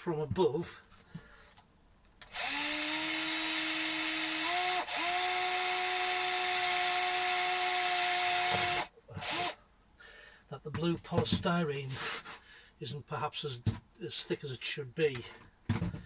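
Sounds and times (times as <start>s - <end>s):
power drill boring into wood: 2.2s - 9.6s.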